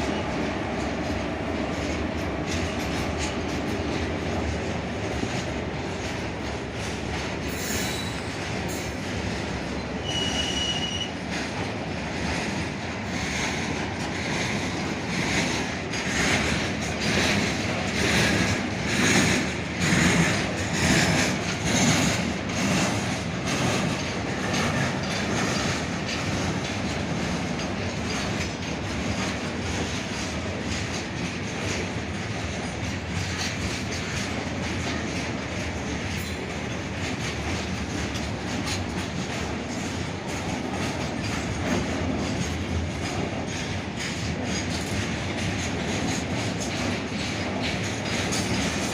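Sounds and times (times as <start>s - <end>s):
train rumble: 0.0s - 48.9s
wheels clattering over rail joints: 0.0s - 48.9s
high wheel squeal: 7.5s - 8.4s, 10.0s - 11.2s.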